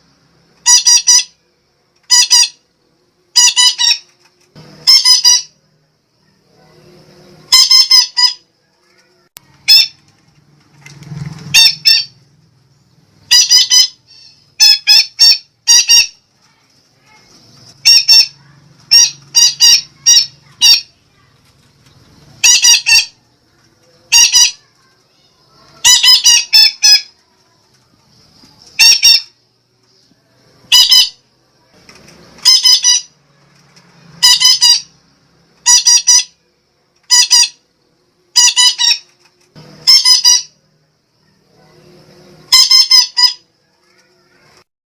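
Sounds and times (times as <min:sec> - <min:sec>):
parakeet calling: 0:00.6 - 0:01.4, 0:02.0 - 0:02.6, 0:03.3 - 0:04.1, 0:04.8 - 0:05.6, 0:07.4 - 0:08.4, 0:09.6 - 0:10.0, 0:11.5 - 0:12.2, 0:13.2 - 0:16.3, 0:17.1 - 0:21.0, 0:22.4 - 0:23.2, 0:24.0 - 0:27.2, 0:28.7 - 0:29.4, 0:30.7 - 0:31.2, 0:32.4 - 0:33.2, 0:34.2 - 0:35.0, 0:35.6 - 0:36.4, 0:37.1 - 0:37.6, 0:38.3 - 0:39.1, 0:39.8 - 0:40.6, 0:42.4 - 0:43.5.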